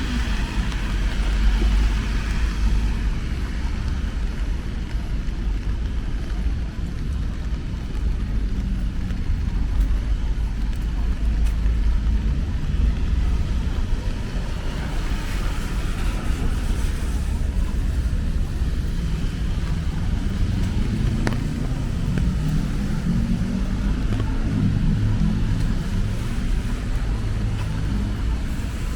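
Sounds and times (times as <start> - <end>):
cars passing in rain: 0.0 - 28.9.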